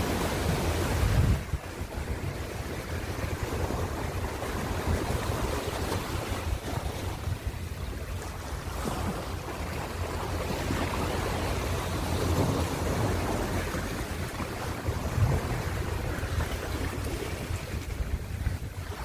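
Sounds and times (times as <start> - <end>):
ocean surf rushing: 0.0 - 7.6.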